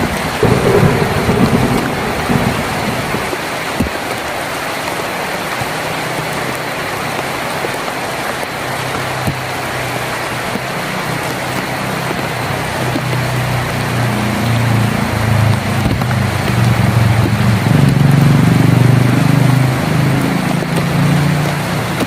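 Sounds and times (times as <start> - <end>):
rain on a tin roof: 0.0 - 22.0
low rumble: 0.4 - 3.8.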